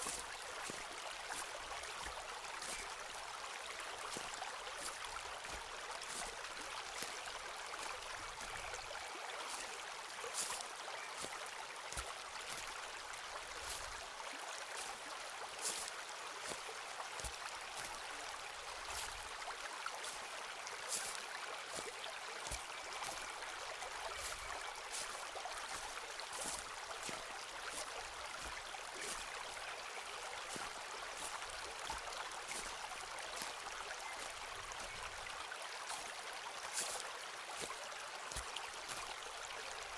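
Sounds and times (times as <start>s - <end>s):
footsteps on leaves and twigs: 0.0s - 2.9s, 3.6s - 14.0s, 14.7s - 18.1s, 18.8s - 20.2s, 20.8s - 39.2s.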